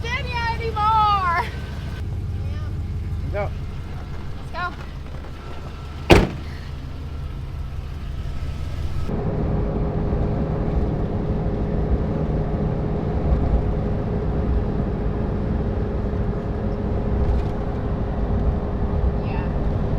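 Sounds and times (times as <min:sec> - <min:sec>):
truck engine rumble: 0:00.0 - 0:09.1.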